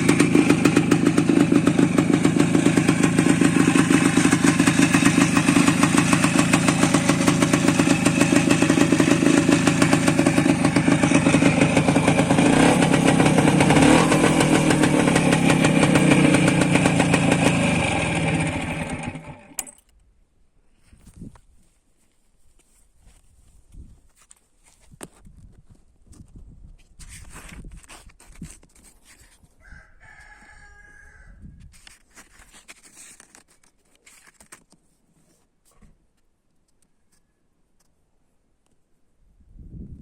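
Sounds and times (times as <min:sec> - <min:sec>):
motorcycle engine running: 0:00.0 - 0:19.8.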